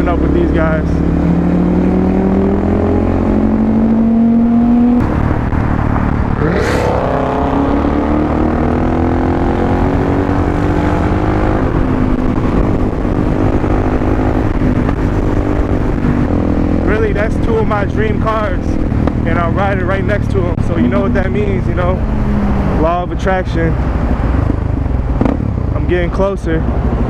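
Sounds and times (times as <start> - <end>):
motorcycle engine running: 0.0 - 27.0
wind rumble on microphone: 0.6 - 27.0
another engine revving up: 6.3 - 11.9.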